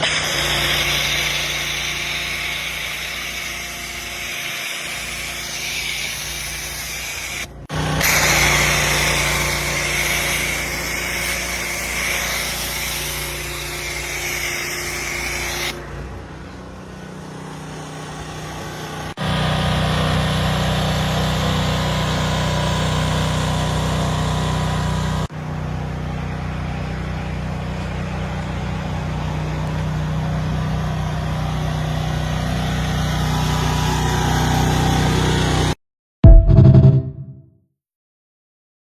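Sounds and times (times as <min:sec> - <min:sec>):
pressure washer spraying: 0:00.0 - 0:25.3.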